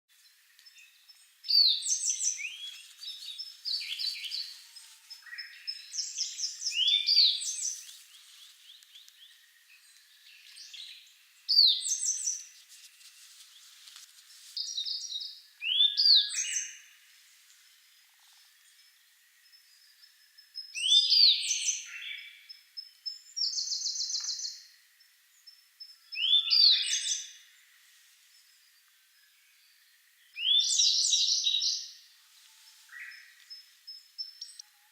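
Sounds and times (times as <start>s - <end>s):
birds singing whistles and trills: 0.2s - 13.7s, 14.6s - 34.9s.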